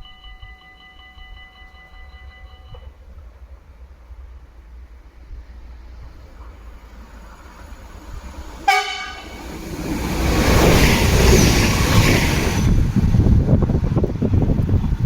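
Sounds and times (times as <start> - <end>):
train passing: 0.0 - 15.0
buffeting wind: 2.7 - 15.0
train horn toot: 8.6 - 9.4.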